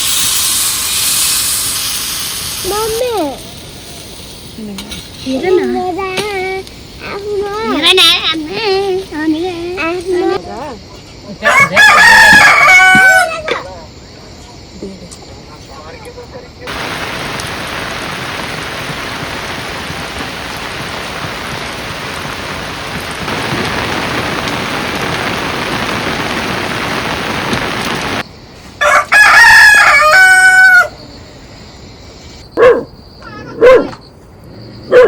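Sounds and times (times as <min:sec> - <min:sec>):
heavy rain: 0:00.0 - 0:04.8, 0:16.7 - 0:28.3
rooster crowing: 0:11.4 - 0:13.6, 0:28.8 - 0:31.0
dog barking: 0:32.6 - 0:32.9, 0:33.5 - 0:34.0.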